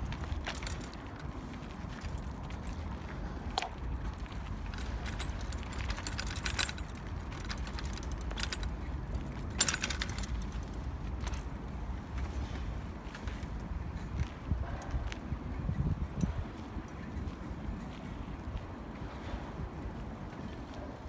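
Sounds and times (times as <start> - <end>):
bike parts rattling and clicking: 0.0 - 14.4
bicycle riding rumble: 0.0 - 21.0.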